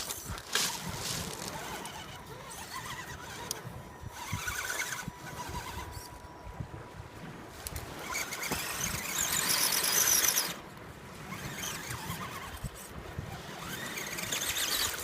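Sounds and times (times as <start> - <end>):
electric motor and gears whining: 0.0 - 15.0.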